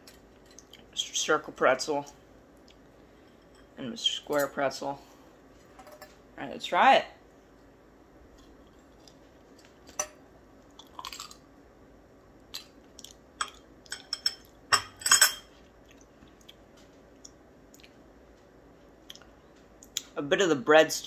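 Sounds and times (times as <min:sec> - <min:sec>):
crunchy chewing: 0:10.7 - 0:11.4.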